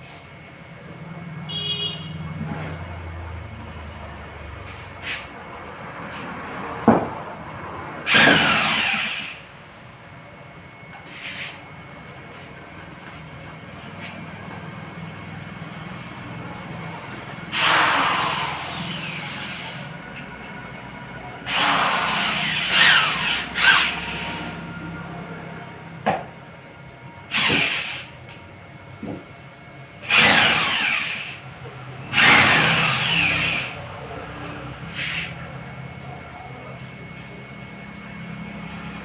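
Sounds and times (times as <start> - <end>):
tool noise bursts: 8.0 - 9.5, 17.5 - 19.9, 21.5 - 24.6, 27.3 - 28.2, 30.0 - 31.5, 32.1 - 33.8, 34.9 - 35.4.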